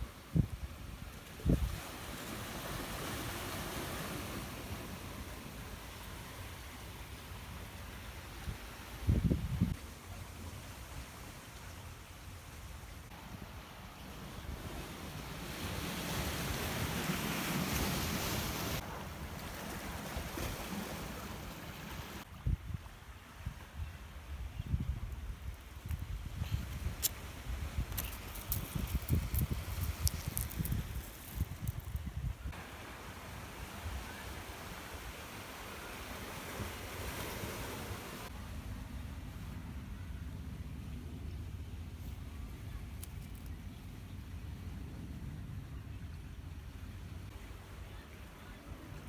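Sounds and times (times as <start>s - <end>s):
sea waves washing on beach: 1.2s - 9.1s, 14.1s - 22.3s, 27.0s - 38.4s
wind buffeting microphone: 22.4s - 32.6s
surf washing on beach: 32.6s - 38.4s.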